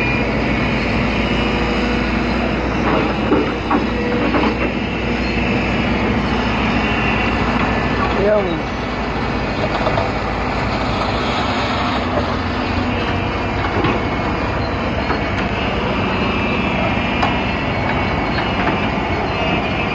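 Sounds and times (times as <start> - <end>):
excavator diesel engine under load: 0.0 - 19.9
high whine: 0.0 - 19.9.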